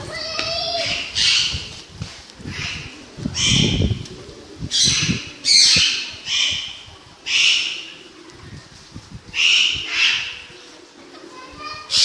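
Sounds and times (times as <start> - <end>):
harsh bird calls: 2.4 - 8.2, 9.3 - 10.5.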